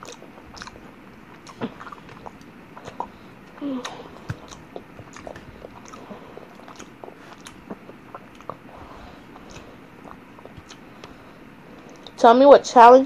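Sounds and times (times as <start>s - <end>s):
person chewing food: 0.0s - 12.2s.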